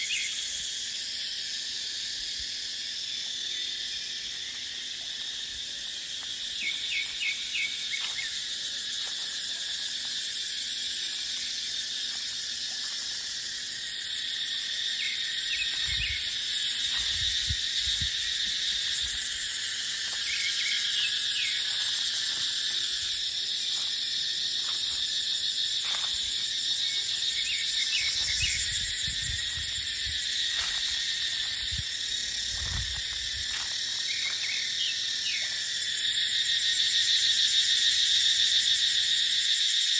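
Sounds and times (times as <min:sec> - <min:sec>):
cicadas buzzing: 0:00.0 - 0:39.9
wind rumbling on microphone: 0:15.7 - 0:16.3, 0:16.9 - 0:19.3, 0:28.2 - 0:30.8, 0:31.6 - 0:33.6.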